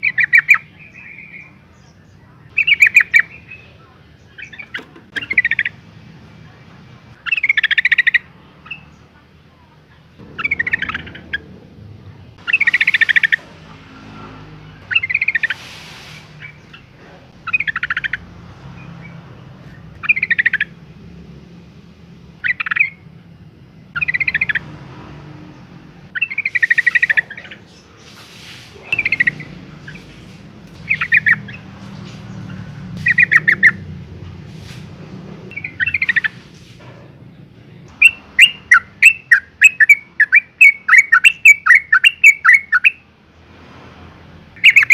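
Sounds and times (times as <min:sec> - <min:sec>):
bird chattering calls: 0:00.0 - 0:01.6, 0:02.5 - 0:05.8, 0:07.1 - 0:09.0, 0:10.2 - 0:11.6, 0:12.4 - 0:13.8, 0:14.8 - 0:20.9, 0:22.4 - 0:23.1, 0:23.9 - 0:24.7, 0:26.1 - 0:34.0, 0:35.5 - 0:36.6, 0:37.9 - 0:43.0, 0:44.6 - 0:44.9
sharp bird chirps: 0:02.5 - 0:05.8, 0:07.2 - 0:09.0, 0:10.2 - 0:11.5, 0:12.4 - 0:13.4, 0:14.8 - 0:20.8, 0:22.4 - 0:23.1, 0:23.9 - 0:24.7, 0:26.1 - 0:33.9, 0:35.5 - 0:36.5, 0:37.9 - 0:43.0, 0:44.6 - 0:44.9.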